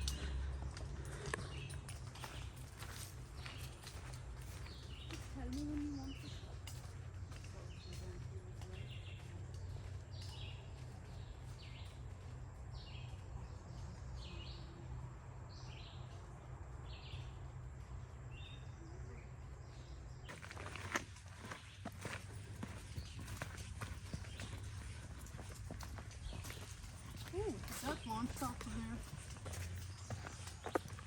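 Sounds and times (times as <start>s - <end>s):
bird chirping: 18.3s - 31.0s.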